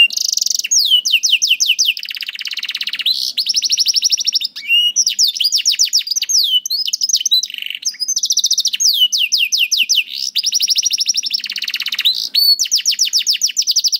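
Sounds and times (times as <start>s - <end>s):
canary singing: 0.0s - 13.9s.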